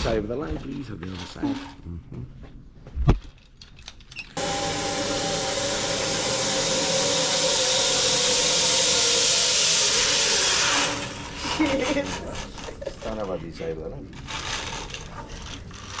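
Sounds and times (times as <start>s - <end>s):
zip line trolley whirring: 4.4s - 13.4s, 14.1s - 16.0s.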